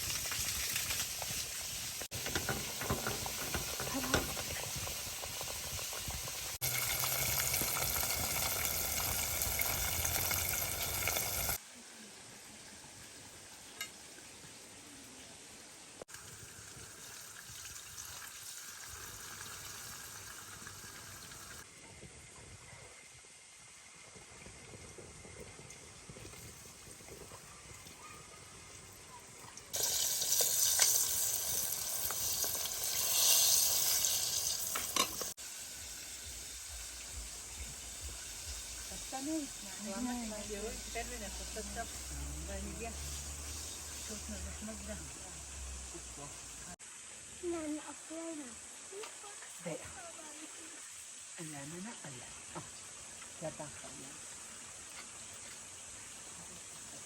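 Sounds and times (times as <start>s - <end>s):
stirring in a pan: 0.0s - 7.5s
food sizzling in a pan: 0.0s - 57.0s.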